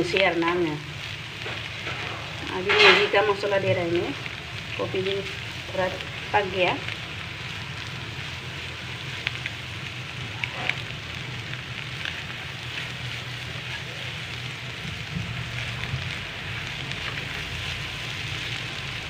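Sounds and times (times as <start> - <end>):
stir-fry sizzling: 0.0 - 19.0
spatula scraping pan: 1.4 - 3.2.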